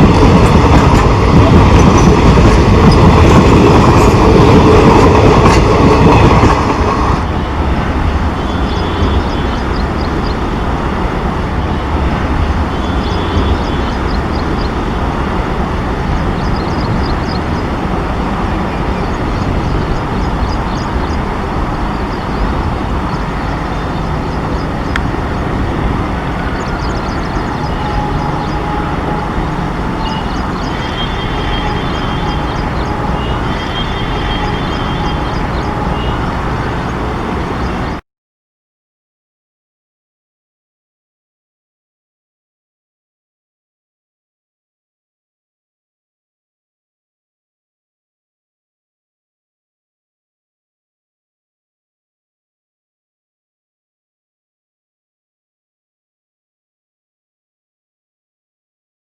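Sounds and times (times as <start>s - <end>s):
wheels clacking over rail joints: 0.0s - 37.9s
train rumbling past: 0.0s - 38.0s.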